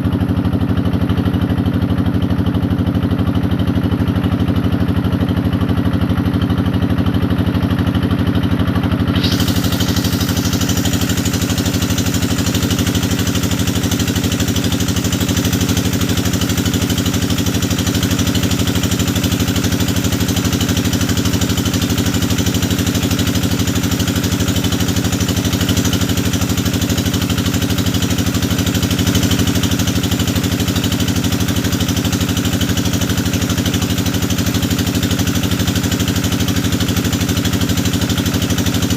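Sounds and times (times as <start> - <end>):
drilling rig engine running: 9.0 - 35.9.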